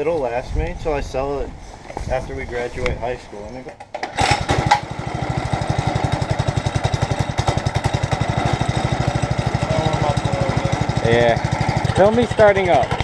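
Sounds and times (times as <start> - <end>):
small engine puttering: 3.9 - 13.0
engine clatter: 4.0 - 13.0.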